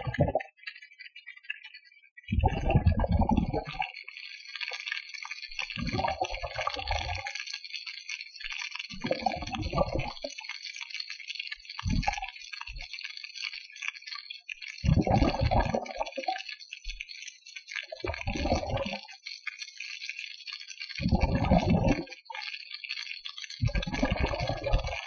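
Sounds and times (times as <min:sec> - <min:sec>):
water sloshing and gurgling: 0:00.0 - 0:04.8, 0:05.5 - 0:07.4, 0:08.8 - 0:10.4, 0:11.8 - 0:12.9, 0:14.8 - 0:16.5, 0:17.8 - 0:19.1, 0:20.9 - 0:22.5, 0:23.6 - 0:25.0.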